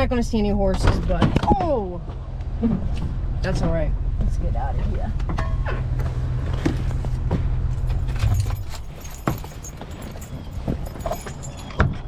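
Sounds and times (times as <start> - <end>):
van engine idling: 0.0 - 11.8
keys jingling: 7.8 - 12.0.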